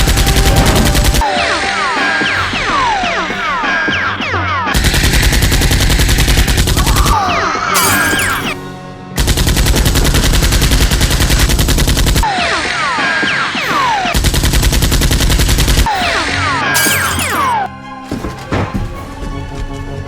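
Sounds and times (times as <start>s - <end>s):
background music: 0.0s - 11.3s, 15.8s - 20.0s
machine-gun sound effect: 7.8s - 8.6s, 16.8s - 17.6s.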